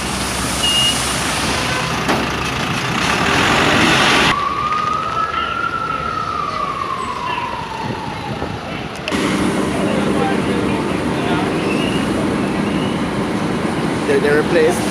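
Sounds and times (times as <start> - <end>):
road traffic noise: 0.0 - 14.9
siren wail: 3.9 - 13.6.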